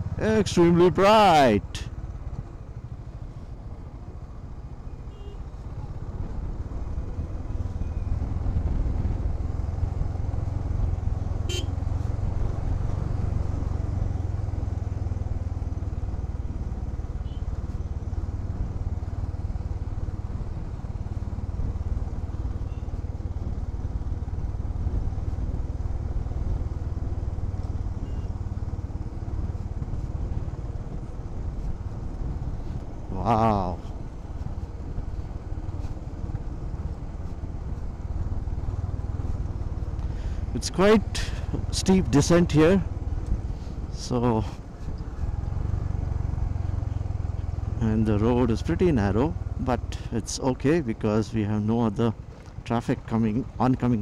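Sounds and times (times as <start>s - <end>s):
motorcycle engine running: 1.9s - 50.7s.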